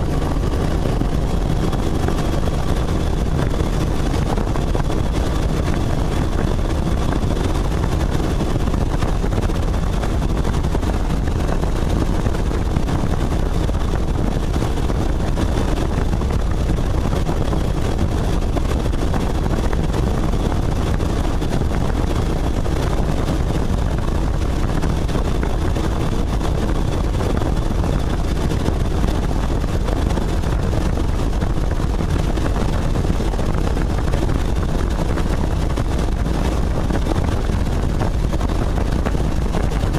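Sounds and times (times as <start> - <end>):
helicopter in flight: 0.0 - 39.9.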